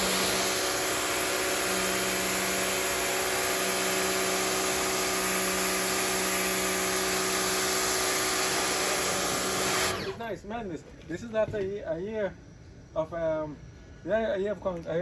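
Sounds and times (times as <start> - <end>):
water jet hissing on concrete: 0.0 - 10.1
pressure washer motor humming: 0.0 - 10.2.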